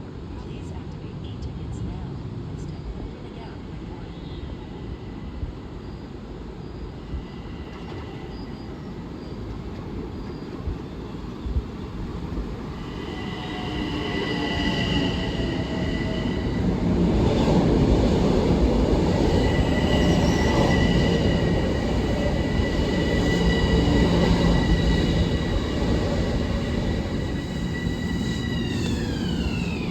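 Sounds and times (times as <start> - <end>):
electric train rumbling past: 0.0 - 29.9
high-pitched wheel squeal: 26.4 - 29.9.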